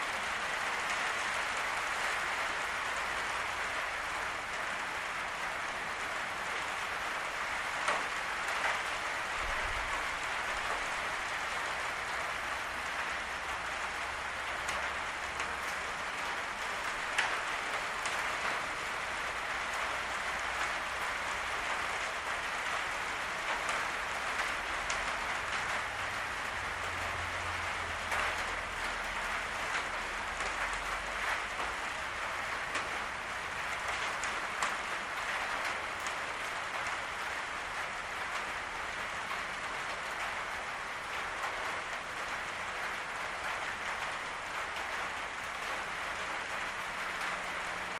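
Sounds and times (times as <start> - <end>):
rain drumming on a roof: 0.0 - 47.9.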